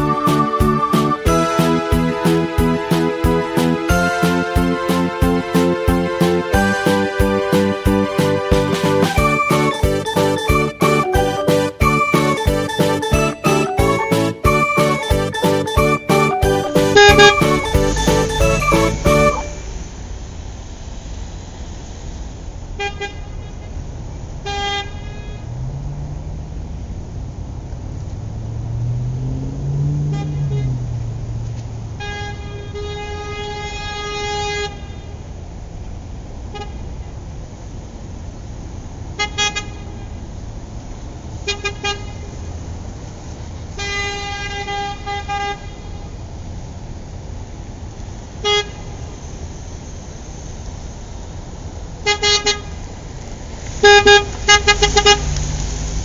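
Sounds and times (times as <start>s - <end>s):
car horn toots: 0.0s - 19.7s, 30.0s - 30.8s, 32.0s - 34.9s, 53.8s - 55.3s
passing engine: 0.0s - 34.4s, 49.2s - 56.0s
road traffic noise: 0.0s - 56.0s.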